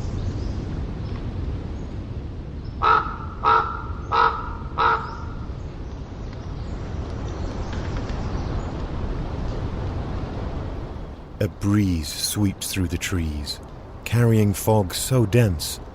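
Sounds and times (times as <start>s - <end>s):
distant ocean rumble: 0.0s - 15.9s
raven calling: 2.8s - 5.4s.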